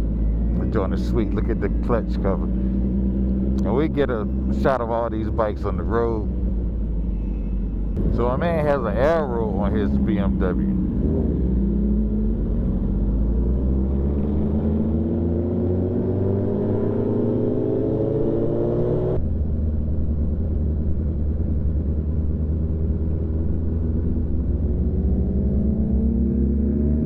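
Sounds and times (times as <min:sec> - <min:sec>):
motorcycle engine accelerating: 0:00.0 - 0:27.0.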